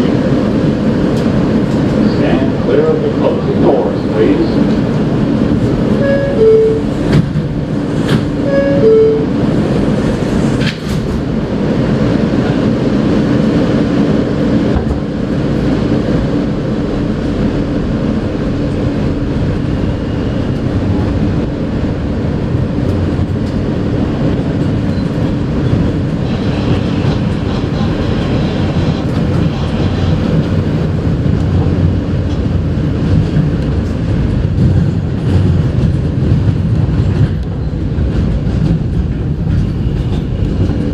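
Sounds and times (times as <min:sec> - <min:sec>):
train rumbling along track: 0:00.0 - 0:40.9
train doors shutting: 0:05.6 - 0:11.4.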